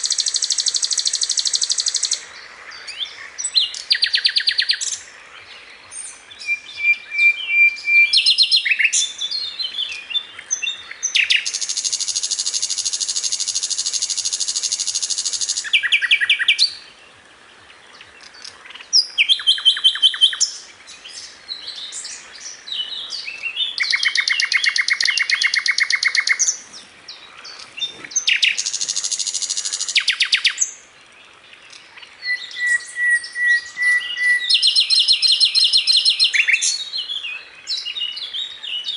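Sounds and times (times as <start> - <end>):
bird singing fast trills: 0.0 - 2.3, 6.0 - 16.9, 18.4 - 30.8, 32.2 - 38.9.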